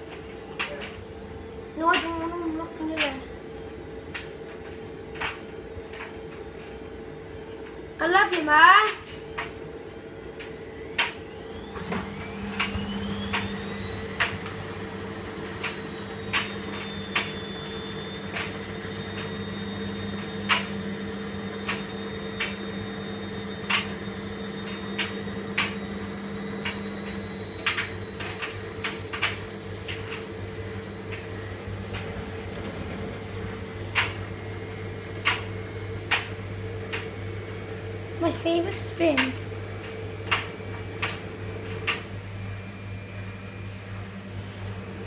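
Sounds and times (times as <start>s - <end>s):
washing machine motor whine: 0.0s - 45.0s
low hum: 11.5s - 45.0s.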